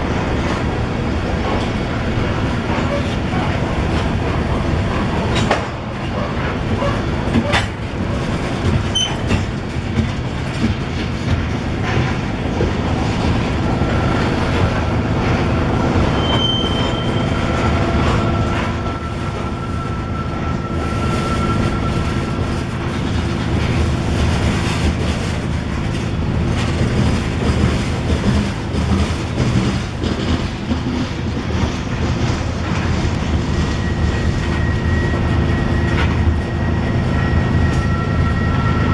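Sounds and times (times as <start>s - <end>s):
freight cars rumbling on track: 0.0s - 38.9s
thin wheel squeal: 13.9s - 25.3s, 33.0s - 38.9s
wheels clicking over rails: 20.5s - 34.6s.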